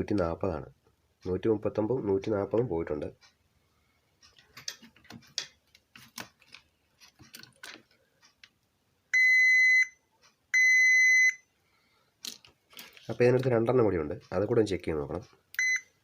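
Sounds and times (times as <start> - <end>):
multimeter continuity beeps: 9.1 - 11.5, 15.6 - 16.0.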